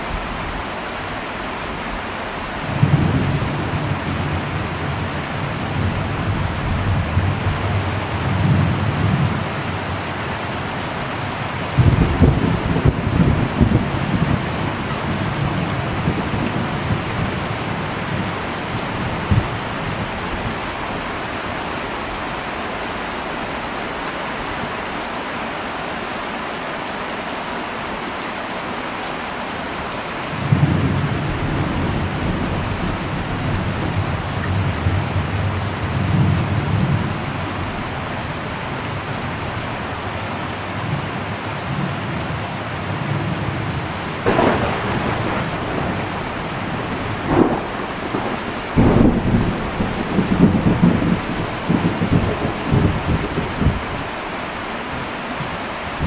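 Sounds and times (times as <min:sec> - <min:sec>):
heavy rain on a metal roof: 0:00.0 - 0:56.0
thunder rumbling: 0:02.6 - 0:21.4, 0:30.4 - 0:40.2, 0:41.7 - 0:54.6.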